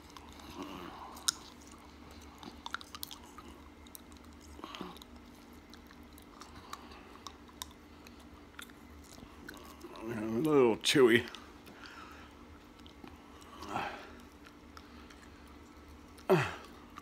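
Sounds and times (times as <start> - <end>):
man chewing: 0.0 - 10.6, 11.3 - 17.0
wet mouth clicks and smacks: 1.1 - 10.0.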